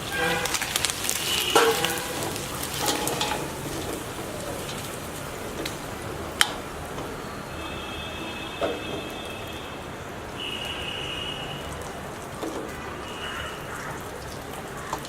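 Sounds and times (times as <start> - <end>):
food sizzling in hot oil: 0.0 - 7.0.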